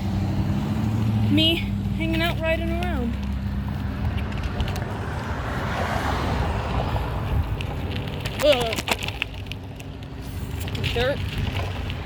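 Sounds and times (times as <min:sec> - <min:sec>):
bike rolling rumble: 0:00.0 - 0:12.0
wind rushing over microphone: 0:03.5 - 0:08.6, 0:10.3 - 0:12.0.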